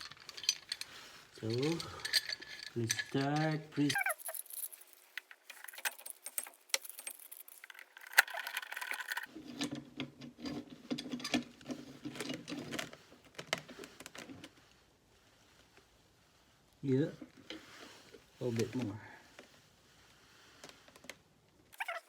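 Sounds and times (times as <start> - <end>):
metal parts clinking: 0.0 - 9.3, 21.8 - 22.0
rattling and scraping: 0.0 - 14.6.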